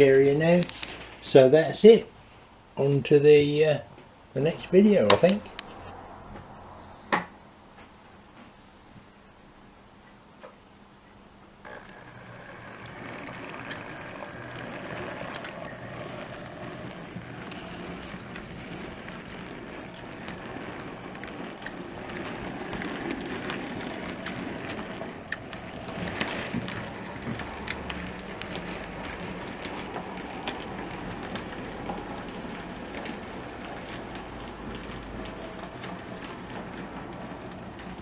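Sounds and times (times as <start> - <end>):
wheels clicking on track: 4.4 - 6.5, 11.6 - 38.0
model train motor hum: 11.6 - 38.0.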